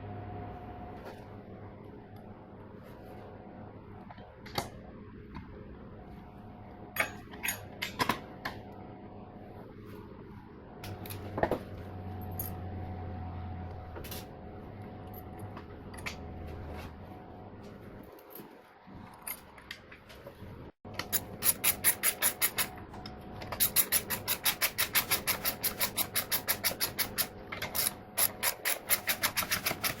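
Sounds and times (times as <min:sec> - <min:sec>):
low steady hum: 0:00.0 - 0:24.4
metal parts and tools clicking: 0:07.0 - 0:08.2, 0:21.0 - 0:22.8, 0:23.4 - 0:30.0.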